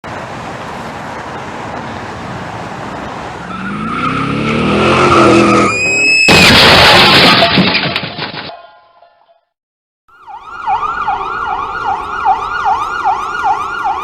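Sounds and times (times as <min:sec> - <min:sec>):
road noise: 0:00.0 - 0:07.2, 0:10.1 - 0:14.0
car engine revving: 0:03.5 - 0:05.7
loud crash of impact: 0:06.2 - 0:08.5.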